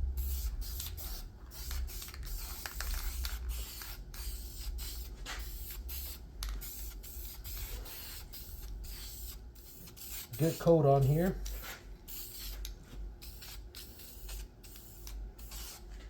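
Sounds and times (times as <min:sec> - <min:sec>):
spray paint can hissing: 0:00.2 - 0:10.6, 0:11.4 - 0:15.8.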